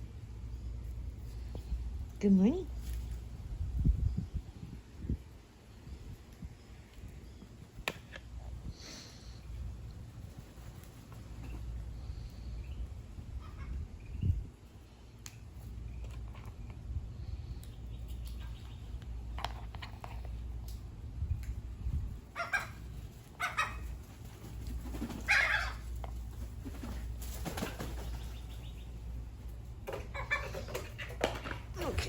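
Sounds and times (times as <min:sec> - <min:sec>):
steady low rumble: 0:00.0 - 0:24.9
birds flapping wings: 0:22.4 - 0:28.6.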